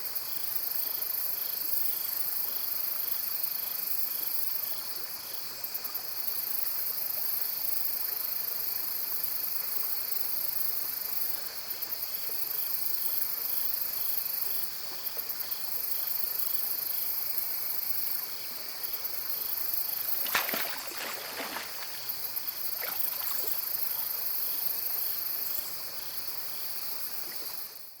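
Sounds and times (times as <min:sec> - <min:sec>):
crickets and insects singing: 0:00.0 - 0:28.0
shrill insect trills: 0:15.6 - 0:27.8.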